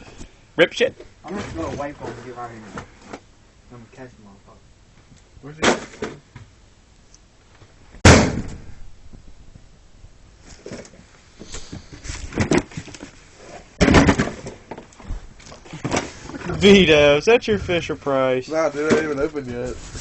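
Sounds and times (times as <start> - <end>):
scraping and rustling: 1.2 - 3.2, 10.4 - 20.0
loud bang: 8.0 - 8.8
clutter thumping and clattering: 11.7 - 17.9, 18.8 - 20.0.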